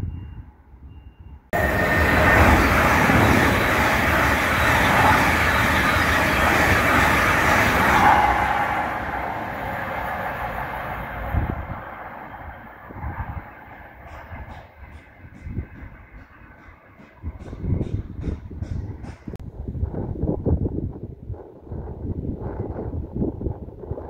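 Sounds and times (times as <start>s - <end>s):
train passing at speed: 1.5s - 19.4s.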